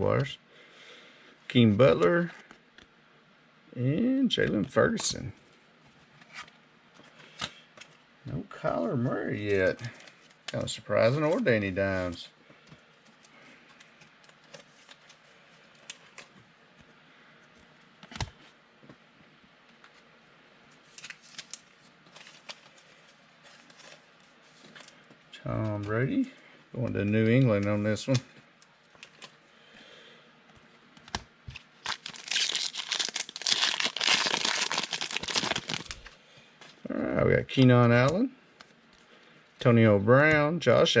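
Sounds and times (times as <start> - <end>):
foil wrapper tearing and crinkling: 20.9 - 22.8, 31.6 - 36.1.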